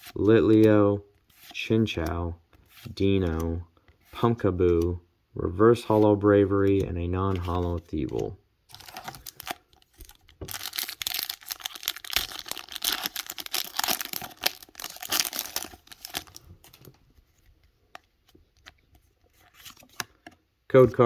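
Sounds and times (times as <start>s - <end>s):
foil wrapper tearing and crinkling: 8.7s - 16.8s.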